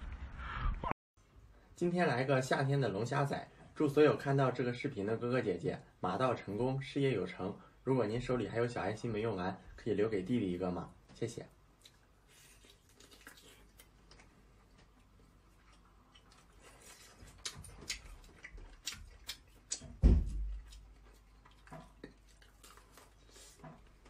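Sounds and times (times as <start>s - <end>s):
chewing and mouth sounds: 11.7s - 24.0s
loud low thump: 20.0s - 20.6s.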